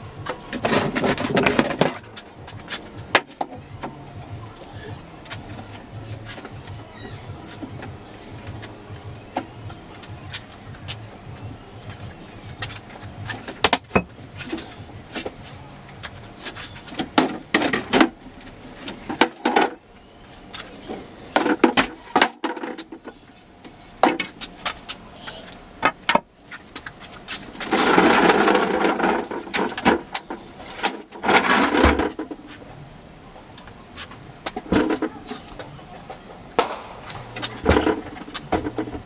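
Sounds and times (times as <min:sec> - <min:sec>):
wood scraping or sliding: 0:00.0 - 0:03.3, 0:27.3 - 0:32.7.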